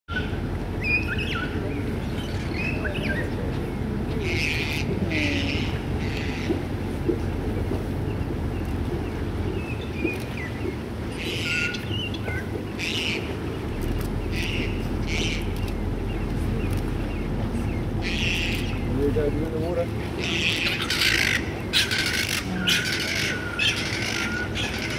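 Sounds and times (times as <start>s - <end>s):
birds chirping: 0.1s - 24.9s
steady low rumble: 0.1s - 24.9s
harsh scratchy bird calls: 20.2s - 24.9s.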